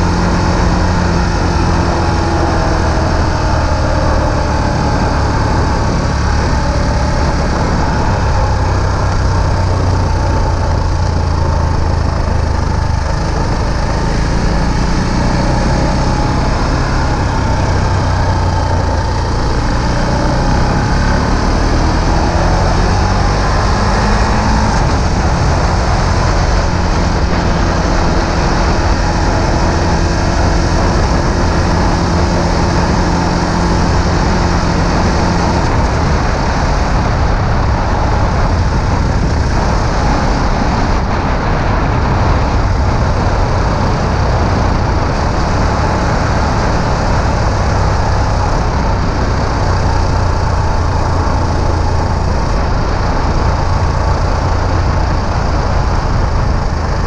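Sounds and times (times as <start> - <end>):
motorcycle engine running: 0.0 - 57.0
wind and road rush: 0.0 - 57.0.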